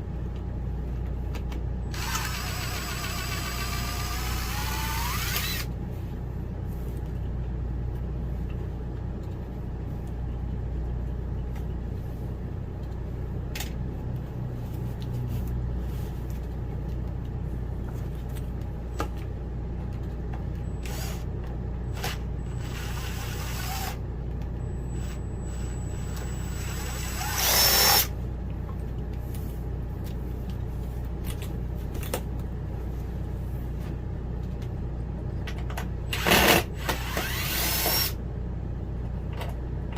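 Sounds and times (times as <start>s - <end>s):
steady low hum: 0.0s - 39.9s
power tool whirring: 1.9s - 5.7s, 20.8s - 21.2s, 21.9s - 24.0s, 24.9s - 28.1s, 36.1s - 38.2s.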